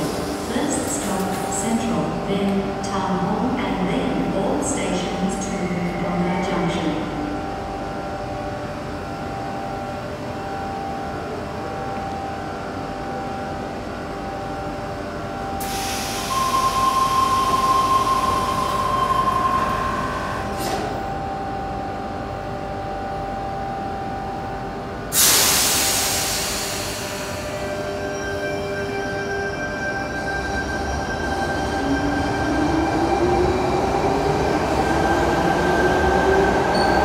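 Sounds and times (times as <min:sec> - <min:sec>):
train equipment humming: 0:00.0 - 0:37.0
steady high tone: 0:15.3 - 0:24.9
loud hiss of air: 0:15.6 - 0:16.6, 0:25.1 - 0:27.6
train doors closing clunk: 0:20.2 - 0:21.0
hiss: 0:25.2 - 0:27.5.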